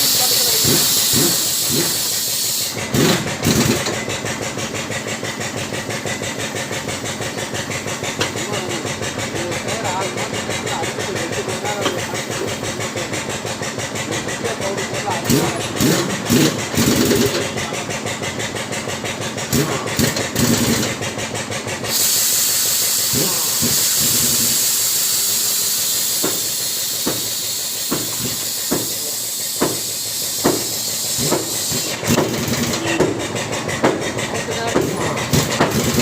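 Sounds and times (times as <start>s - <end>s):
loud steady hiss: 0.0s - 2.8s, 21.9s - 32.0s.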